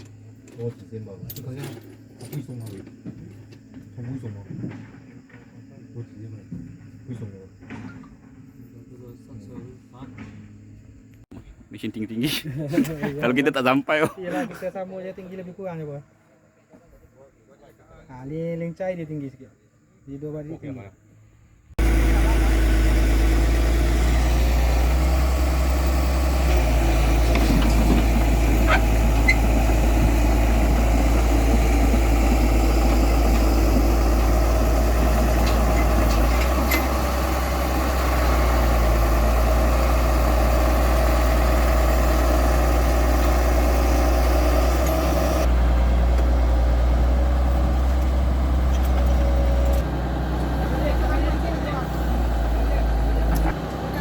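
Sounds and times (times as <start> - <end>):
diesel engine idling: 21.8 - 54.0.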